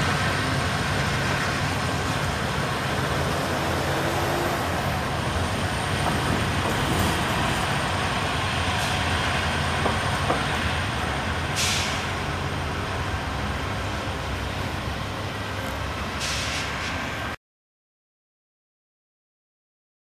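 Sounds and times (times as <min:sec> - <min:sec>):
diesel locomotive engine rumble: 0:00.0 - 0:17.4
train wheel and rail noise: 0:00.0 - 0:17.4
short hisses: 0:16.2 - 0:17.0.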